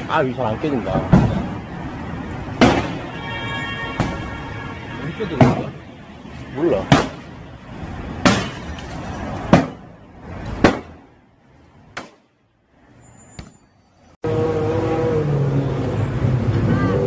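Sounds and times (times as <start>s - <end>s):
sharp striking blows: 2.5s - 3.2s, 6.7s - 7.4s, 8.1s - 8.8s, 9.5s - 9.9s, 10.6s - 11.1s.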